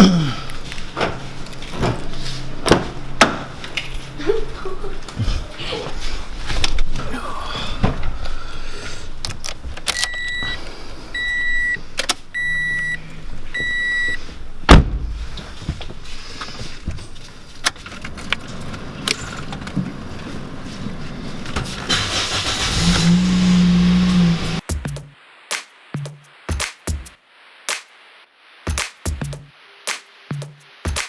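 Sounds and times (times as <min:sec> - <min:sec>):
vehicle warning chime beeping: 0:10.0 - 0:14.3
loud thump: 0:14.7 - 0:15.5.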